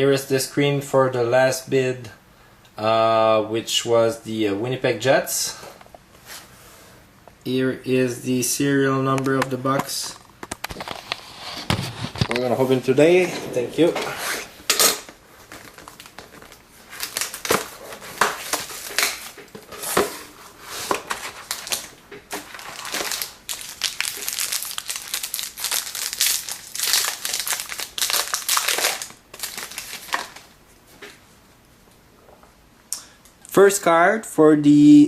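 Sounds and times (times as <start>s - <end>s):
plastic wrapping crinkling and tearing: 15.3s - 19.6s, 20.8s - 30.5s.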